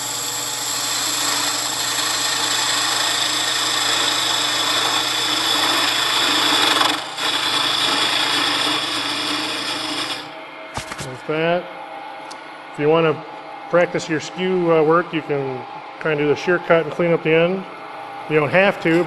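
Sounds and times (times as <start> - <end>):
chisel cutting hiss: 0.0 - 10.3
wood lathe humming: 0.0 - 10.4.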